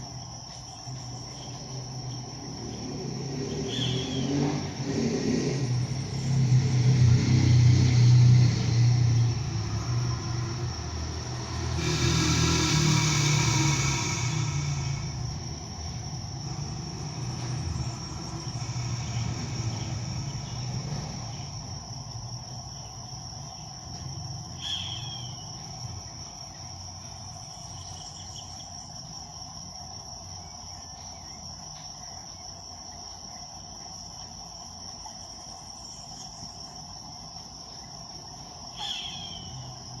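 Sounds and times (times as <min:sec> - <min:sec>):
low engine rumble: 0:00.0 - 0:38.7
high-pitched insect drone: 0:00.0 - 0:40.0
hawk calls: 0:24.6 - 0:25.4, 0:38.8 - 0:39.6.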